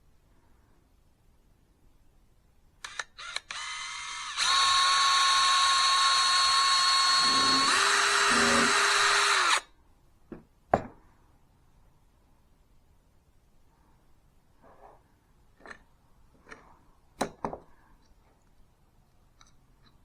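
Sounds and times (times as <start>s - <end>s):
power drill whining: 2.9s - 9.6s.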